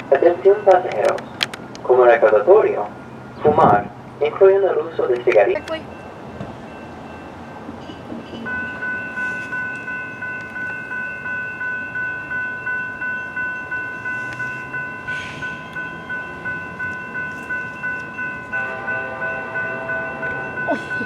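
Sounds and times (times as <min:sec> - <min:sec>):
crossing warning bells ringing: 0:00.0 - 0:21.0
lower-toned bell: 0:05.8 - 0:21.0.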